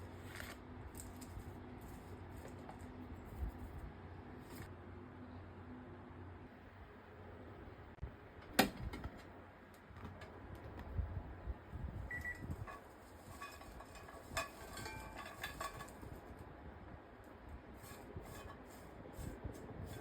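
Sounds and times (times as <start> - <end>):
utensils and cookware clicking: 12.1 - 16.1.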